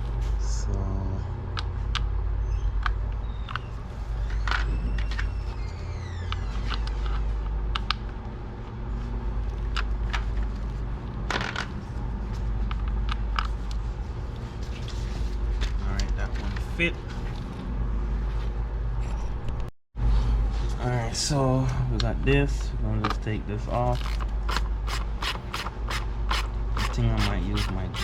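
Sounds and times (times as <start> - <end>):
steady low hum: 0.0 - 28.0
short squeaks: 2.4 - 7.2.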